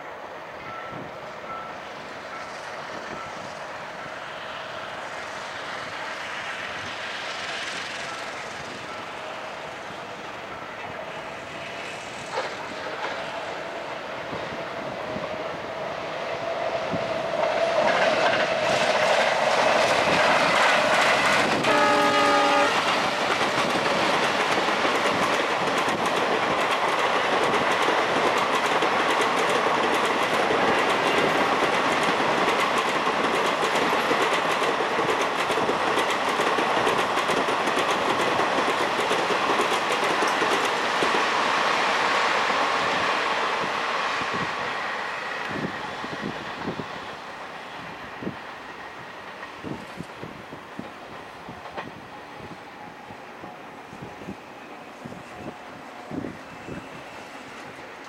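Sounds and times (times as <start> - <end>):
diesel locomotive engine drone: 0.0 - 58.0
train wheels clicking over rail joints: 0.0 - 58.0
train horn blast: 21.5 - 23.0.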